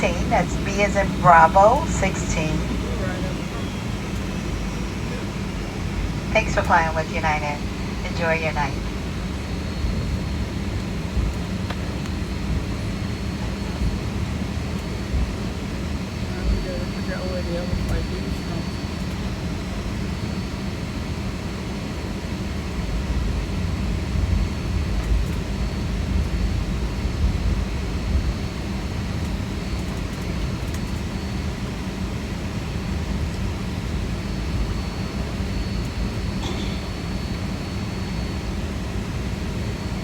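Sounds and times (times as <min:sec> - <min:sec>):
faint high whine: 0:00.0 - 0:14.2, 0:14.8 - 0:19.0
low rumble of aircraft cabin: 0:00.0 - 0:40.0.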